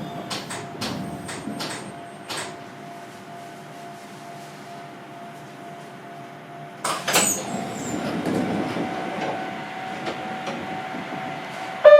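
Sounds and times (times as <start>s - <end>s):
train car hum: 0.0s - 11.9s
train rumbling: 0.0s - 11.9s
clatter and high squeal: 7.1s - 8.2s.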